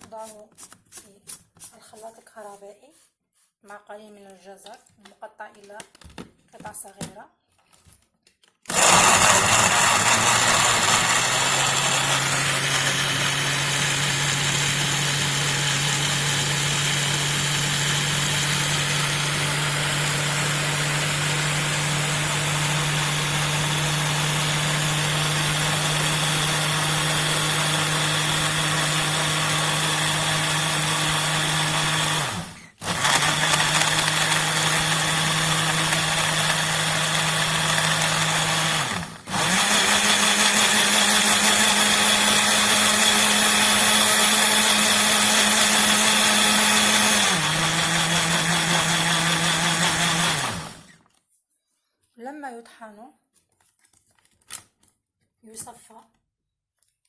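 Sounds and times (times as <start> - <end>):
blender motor grinding: 8.6 - 51.0.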